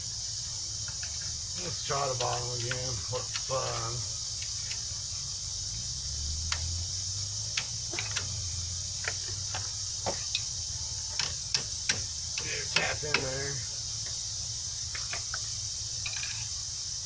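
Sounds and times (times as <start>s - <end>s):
steady high hiss: 0.0s - 17.0s
metallic clicks of brake parts: 2.1s - 4.9s, 6.5s - 6.8s, 7.5s - 10.5s, 11.1s - 13.4s.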